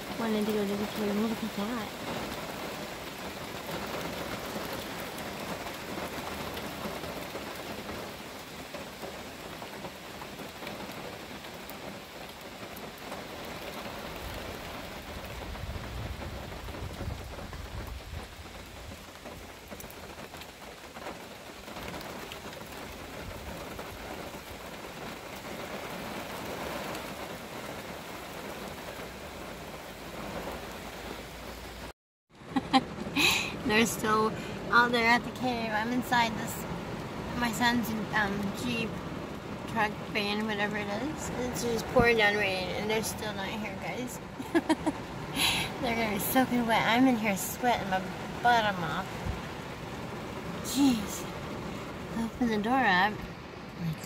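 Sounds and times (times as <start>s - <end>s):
heavy rain pouring: 0.0s - 54.0s
low thunder rumble: 14.1s - 19.8s.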